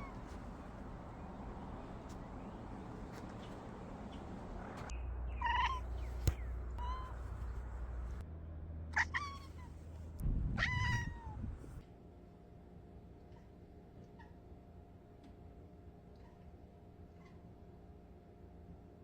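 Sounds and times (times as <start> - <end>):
cat meowing: 5.4 - 5.9, 6.8 - 7.4, 9.0 - 9.7, 10.6 - 11.4.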